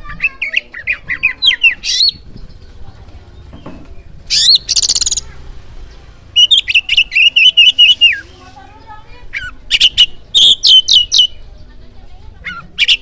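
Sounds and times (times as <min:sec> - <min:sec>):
bird song with whistled notes: 0:00.1 - 0:02.8, 0:03.4 - 0:08.3, 0:09.3 - 0:11.7.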